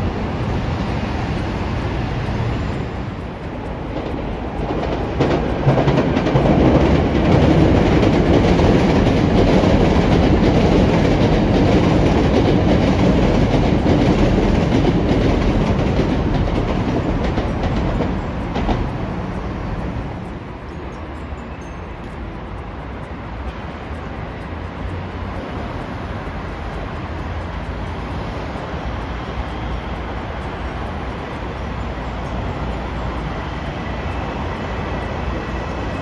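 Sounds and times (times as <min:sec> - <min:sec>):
train passing: 0:00.0 - 0:36.0.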